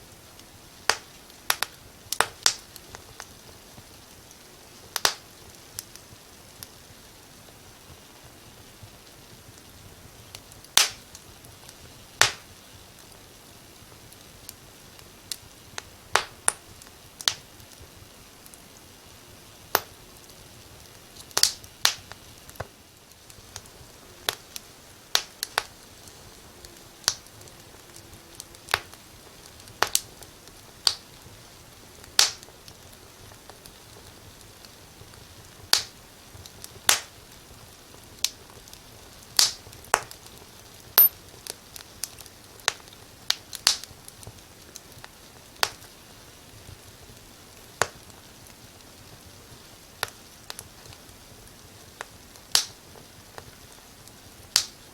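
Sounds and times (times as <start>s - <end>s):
faint steady hiss: 0.0s - 54.9s
wood fire crackling: 0.0s - 54.9s.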